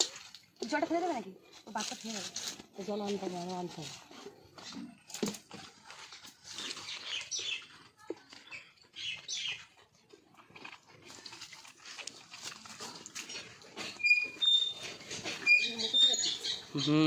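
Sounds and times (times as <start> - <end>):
high bird chirps: 6.6 - 7.7, 8.5 - 9.6, 14.0 - 14.8, 15.4 - 17.0.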